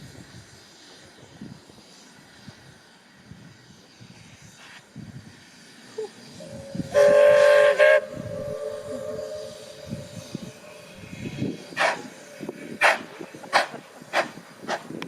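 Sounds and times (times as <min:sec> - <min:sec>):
steam locomotive whistle blowing: 0:06.4 - 0:13.2.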